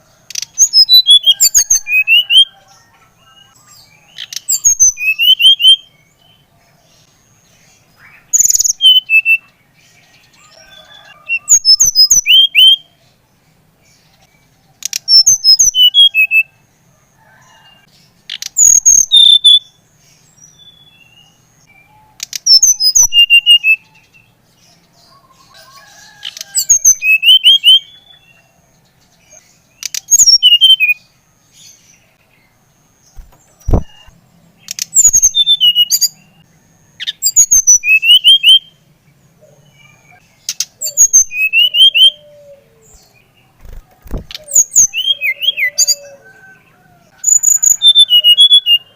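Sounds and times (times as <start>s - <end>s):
flycatcher whistling song: 4.2s - 6.0s, 8.1s - 9.5s, 10.6s - 12.9s, 20.6s - 24.0s, 26.6s - 28.2s, 33.2s - 34.1s, 37.0s - 38.8s, 40.5s - 43.0s, 43.6s - 46.2s.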